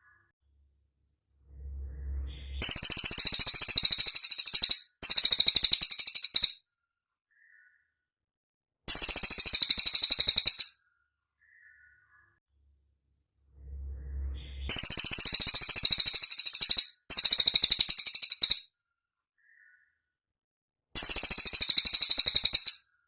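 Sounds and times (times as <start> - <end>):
faint low rumble: 0.4 - 3.7, 12.5 - 15.3
bird high-pitched trills: 1.6 - 6.6, 8.9 - 10.8, 13.6 - 18.6, 21.0 - 22.8.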